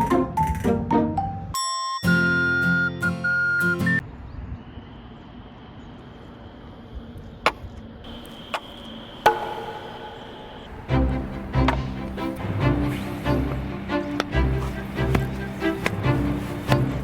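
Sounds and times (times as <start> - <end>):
background music: 0.0 - 4.0, 9.3 - 17.0
sharp knocks: 7.5 - 10.8.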